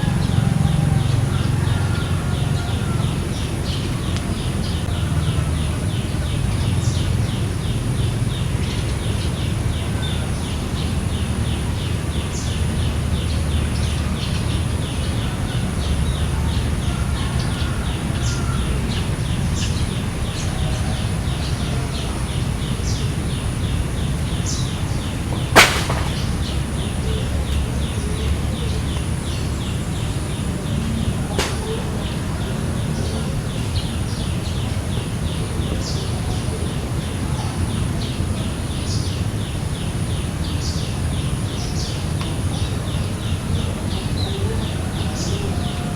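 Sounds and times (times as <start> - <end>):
sharp snap: 25.5 - 26.6, 31.4 - 31.8.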